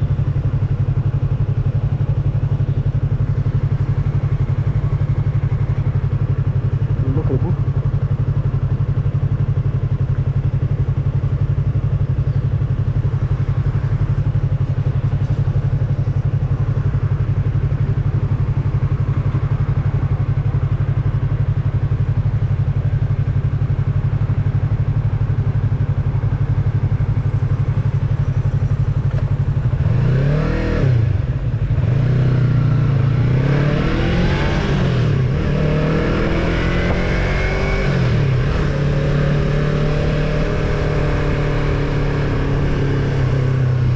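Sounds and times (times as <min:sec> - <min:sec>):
motorcycle engine revving: 0:26.9 - 0:43.9.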